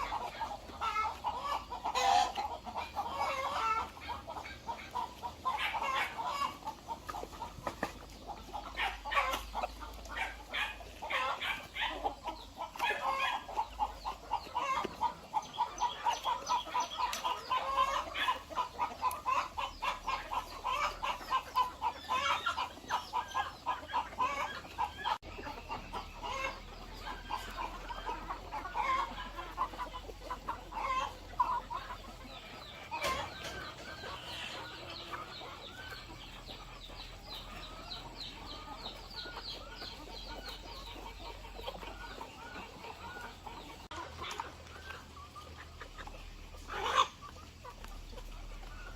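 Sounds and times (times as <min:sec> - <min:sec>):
chickens clucking: 0:00.0 - 0:48.9.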